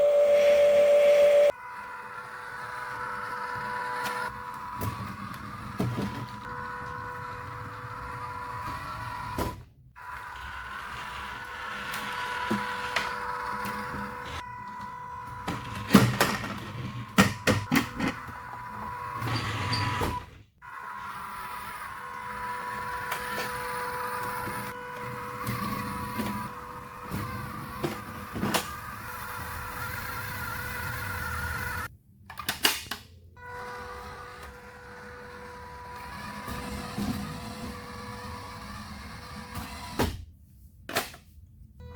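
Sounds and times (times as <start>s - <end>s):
steady high whine: 0.0s - 1.6s.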